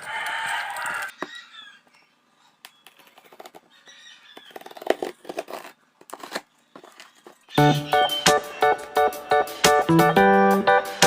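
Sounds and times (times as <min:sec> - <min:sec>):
paper and packaging rustling: 0:02.9 - 0:07.6.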